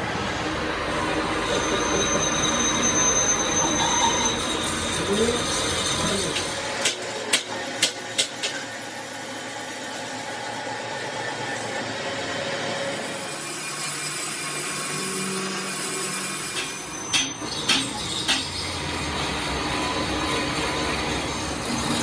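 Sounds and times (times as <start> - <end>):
steady mechanical hum: 0.0 - 22.0
sharp metal knocks: 16.6 - 18.6.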